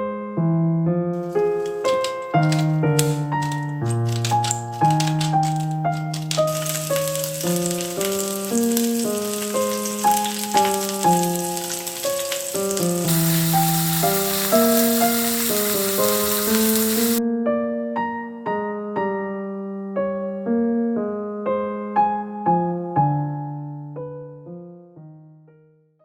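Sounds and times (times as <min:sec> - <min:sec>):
gentle piano music: 0:00.0 - 0:26.0
steady hiss: 0:06.4 - 0:17.2.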